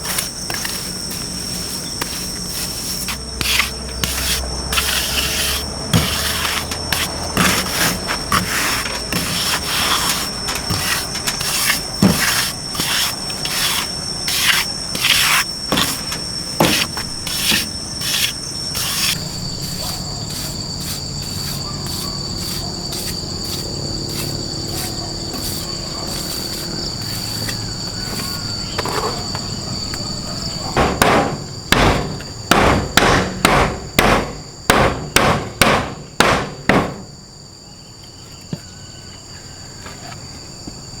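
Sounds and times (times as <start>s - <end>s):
insects droning: 0.0s - 41.0s
hammer knocks: 30.7s - 37.1s.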